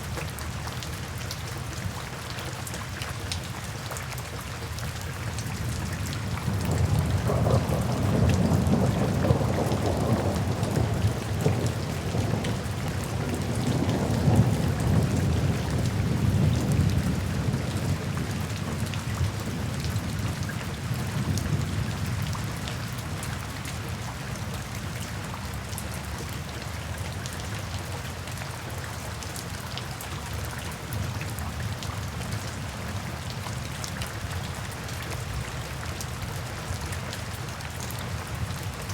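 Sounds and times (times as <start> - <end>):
steady rain falling: 0.0 - 38.9
low roll of thunder: 6.2 - 18.8.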